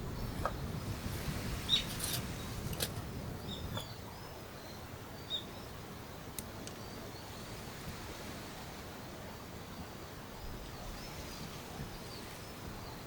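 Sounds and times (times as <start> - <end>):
birds chirping: 0.0 - 6.2
low outdoor background: 0.0 - 13.0.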